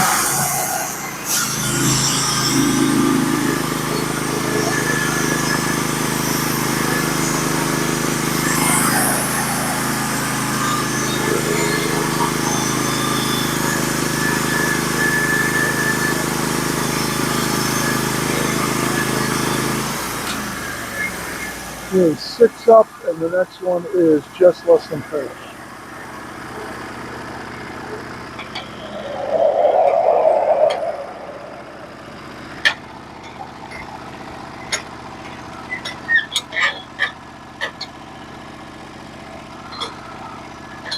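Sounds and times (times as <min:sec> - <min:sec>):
gas engine running at full throttle: 0:01.0 - 0:29.1.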